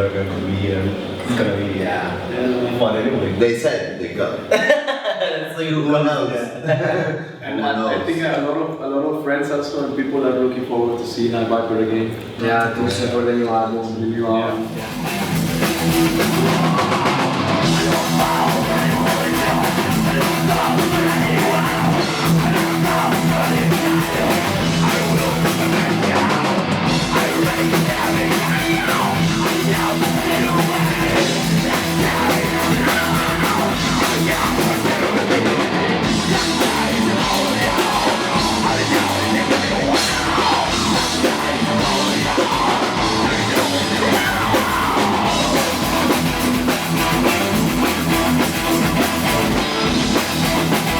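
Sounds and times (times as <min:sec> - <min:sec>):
distorted electric guitars: 0:14.5 - 0:50.9
drum kit: 0:14.5 - 0:50.9.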